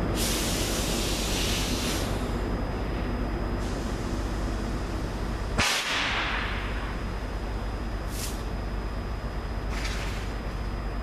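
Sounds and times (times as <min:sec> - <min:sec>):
freight train rumble: 0:00.0 - 0:11.0
air hiss: 0:00.2 - 0:02.3, 0:08.1 - 0:08.5.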